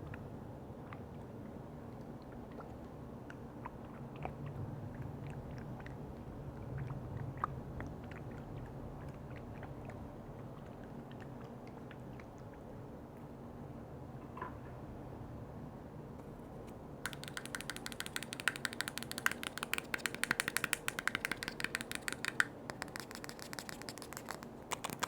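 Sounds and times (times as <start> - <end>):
container lids clicking: 17.1 - 25.0
wet crackles: 17.1 - 25.0.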